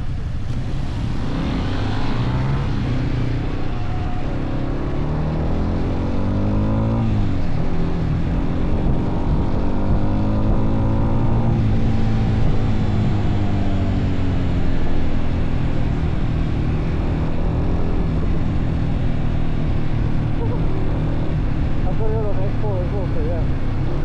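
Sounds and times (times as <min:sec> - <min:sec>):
steady rush of noise: 0:00.0 - 0:11.2
motorcycle engines running: 0:00.0 - 0:24.0.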